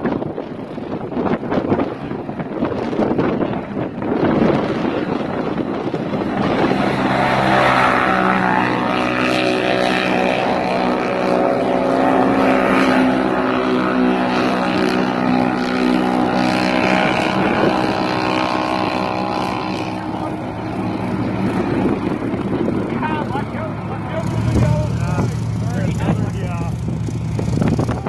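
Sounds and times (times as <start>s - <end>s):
wind noise: 0.0s - 28.0s
quad bike engine running: 6.2s - 28.0s.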